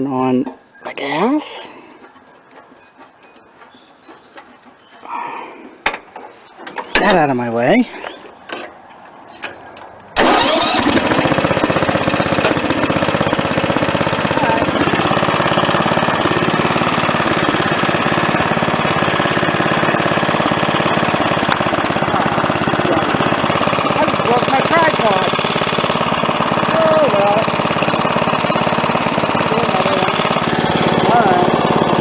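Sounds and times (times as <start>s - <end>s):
lawn tractor engine starting: 10.2s - 32.0s.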